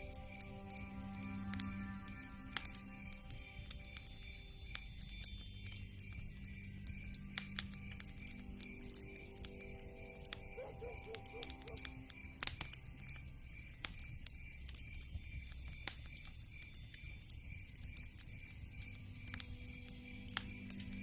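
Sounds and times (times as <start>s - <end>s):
campfire crackling and popping: 0.0s - 21.0s
crickets chirping: 0.0s - 21.0s
night animal low calls: 10.6s - 11.9s.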